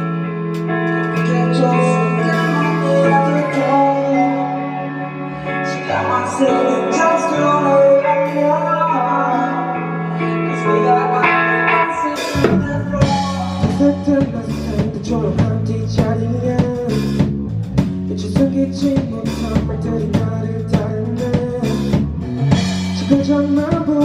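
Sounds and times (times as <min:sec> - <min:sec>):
band holding ringing chords: 0:11.2 - 0:13.7
drum kick and snare hits: 0:11.3 - 0:13.3.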